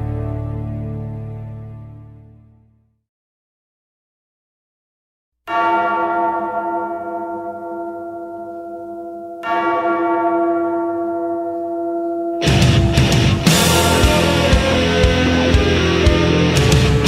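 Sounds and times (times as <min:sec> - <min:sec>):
large bell tolling: 0:05.5 - 0:17.0.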